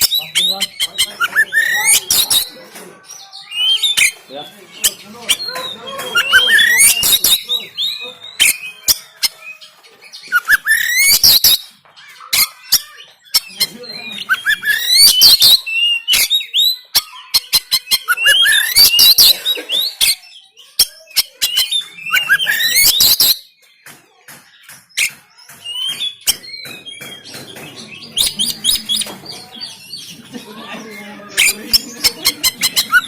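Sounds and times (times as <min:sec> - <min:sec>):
bird singing whistles and clicks: 0:00.0 - 0:02.5, 0:04.8 - 0:09.6, 0:10.2 - 0:11.7, 0:12.4 - 0:19.3, 0:20.0 - 0:23.7, 0:24.5 - 0:29.1.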